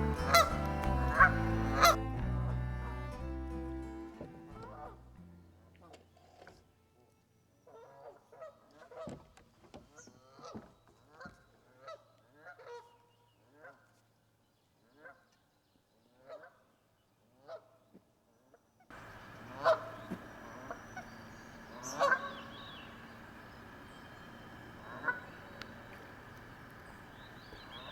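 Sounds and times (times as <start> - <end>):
geese honking: 0.0 - 5.1, 18.9 - 27.9
background noise: 0.0 - 27.9.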